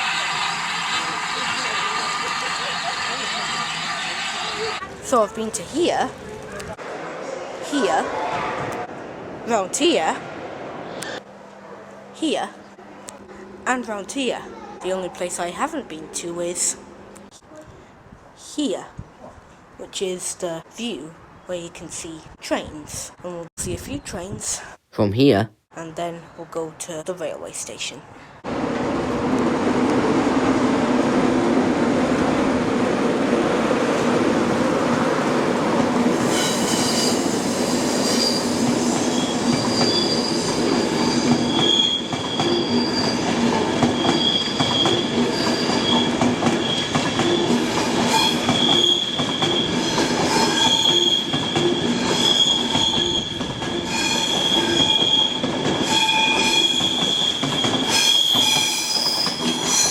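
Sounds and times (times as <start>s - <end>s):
train rumbling on rails: 0.0s - 11.2s, 28.4s - 59.9s
train wheels squealing: 36.2s - 59.9s.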